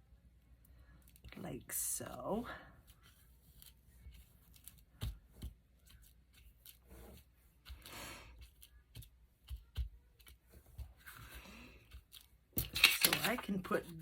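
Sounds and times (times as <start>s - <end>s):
paper rustling: 2.8s - 14.0s.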